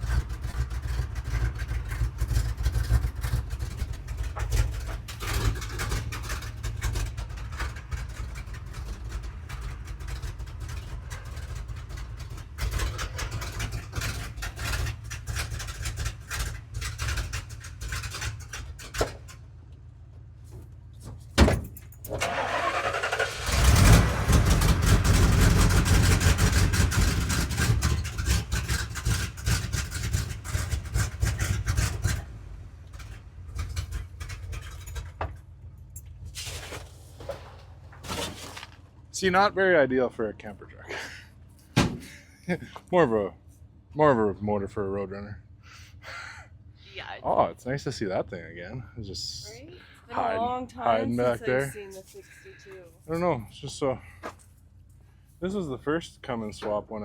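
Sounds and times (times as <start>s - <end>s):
truck engine rumbling: 0.0s - 57.0s
engine cranking whine: 22.1s - 38.1s.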